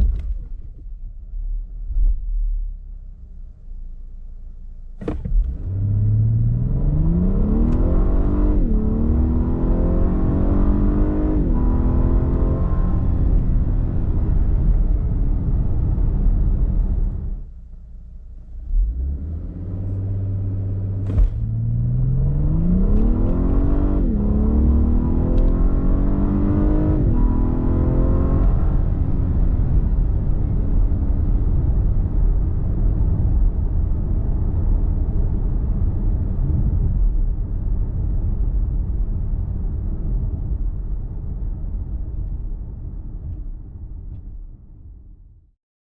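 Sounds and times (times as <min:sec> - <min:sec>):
car engine accelerating hard: 0:05.0 - 0:17.4, 0:18.6 - 0:40.4.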